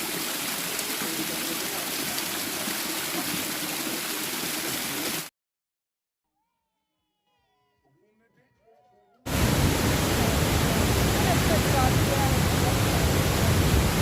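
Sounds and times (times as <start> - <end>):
waterfall roaring: 0.0 - 5.3, 9.3 - 14.0.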